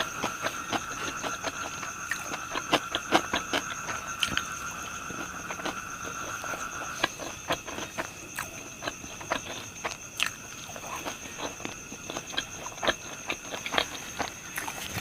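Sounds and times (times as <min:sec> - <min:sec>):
crunchy chewing: 0:00.0 - 0:15.0
steady high whine: 0:00.0 - 0:15.0.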